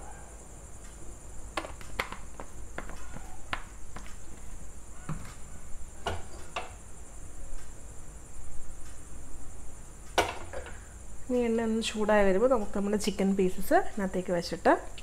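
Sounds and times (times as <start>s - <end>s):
crickets chirring: 0.0s - 15.0s
frying pan and utensils knocking: 10.2s - 10.8s.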